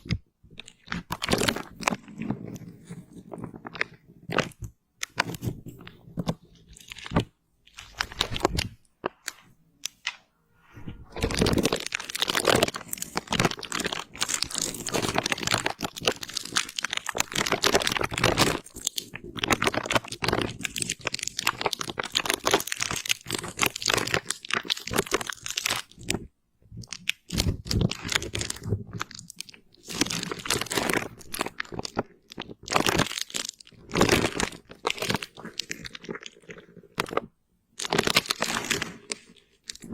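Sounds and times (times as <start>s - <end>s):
close-miked crunching and crackling: 0.0s - 39.9s.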